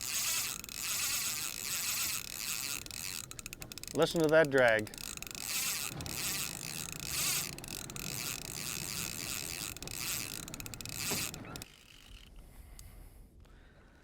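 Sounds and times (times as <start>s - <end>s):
fishing reel drag buzzing: 0.0s - 12.4s.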